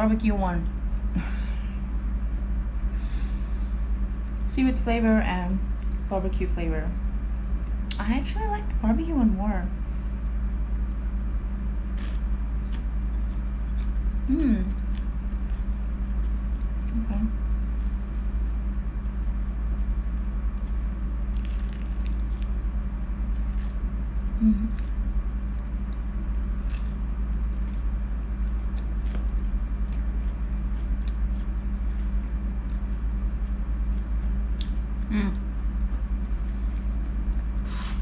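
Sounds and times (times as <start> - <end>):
low hum: 0.0 - 38.0
chewing and crunching: 10.8 - 18.4, 19.7 - 24.0, 24.7 - 35.1, 35.7 - 38.0.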